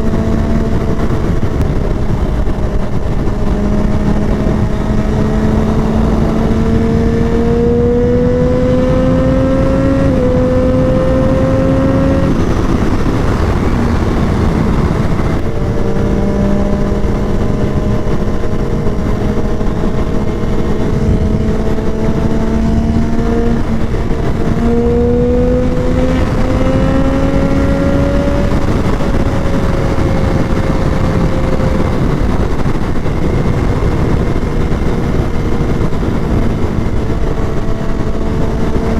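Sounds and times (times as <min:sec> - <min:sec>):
motorcycle engine: 0:00.0 - 0:38.9
wind rush: 0:00.0 - 0:38.9.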